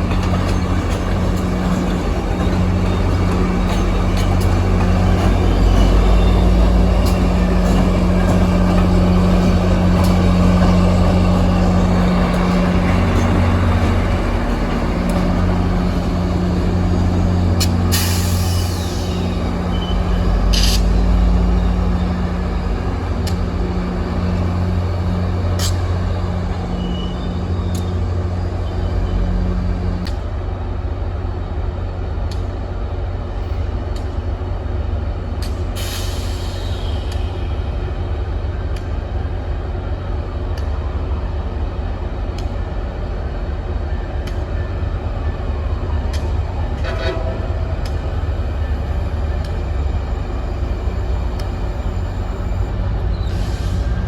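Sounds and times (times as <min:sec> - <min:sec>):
train locomotive running: 0:00.0 - 0:54.0
air brakes hissing: 0:16.2 - 0:21.2, 0:35.8 - 0:37.5, 0:48.6 - 0:54.0.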